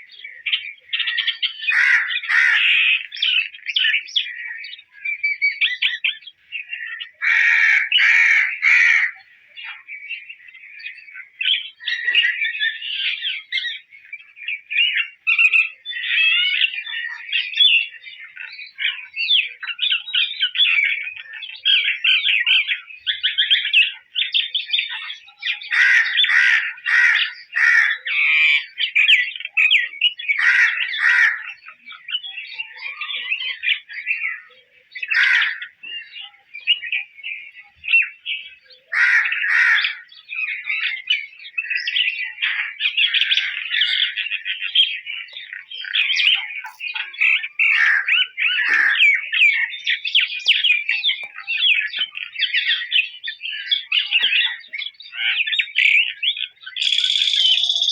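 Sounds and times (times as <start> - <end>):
bird chattering warble: 56.7 - 57.9.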